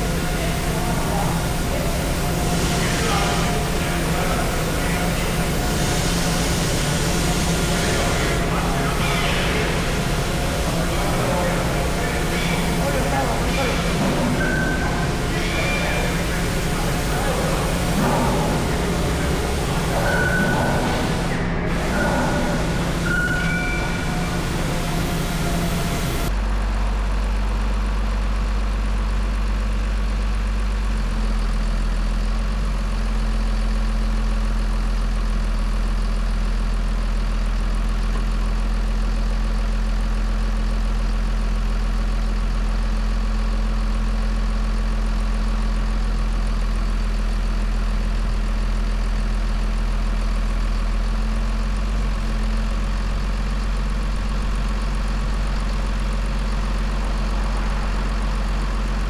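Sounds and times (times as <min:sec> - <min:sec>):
heavy engine running: 0:00.0 - 0:59.0.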